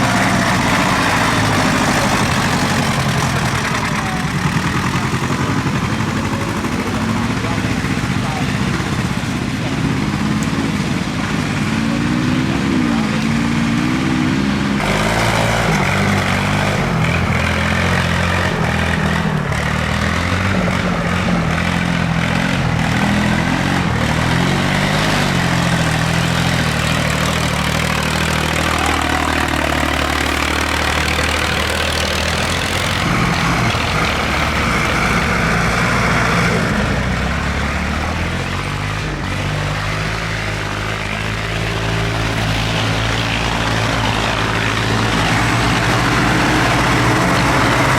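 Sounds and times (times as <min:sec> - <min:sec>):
tractor engines rumbling: 0:00.0 - 0:47.9.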